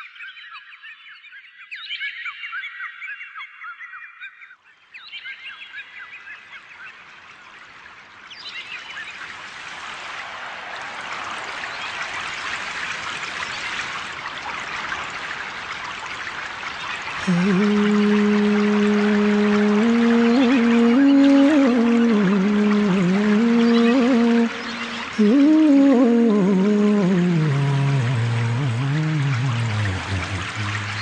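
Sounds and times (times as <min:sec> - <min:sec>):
running water: 0:06.9 - 0:31.0
birds chirping: 0:16.8 - 0:31.0.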